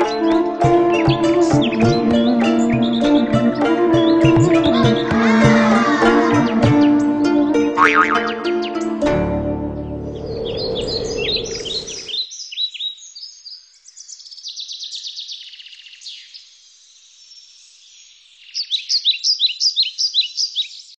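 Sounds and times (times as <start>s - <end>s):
music track: 0.0s - 11.7s
birds chirping: 0.2s - 7.1s, 7.8s - 8.9s, 9.6s - 16.5s.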